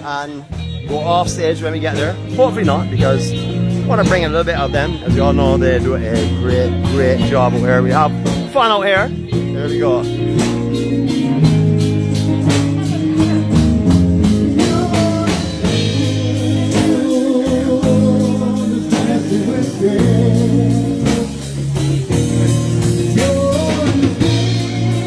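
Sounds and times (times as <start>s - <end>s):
drum kit beat: 0.0s - 25.0s
live band playing: 0.0s - 25.0s
person singing: 12.7s - 25.0s.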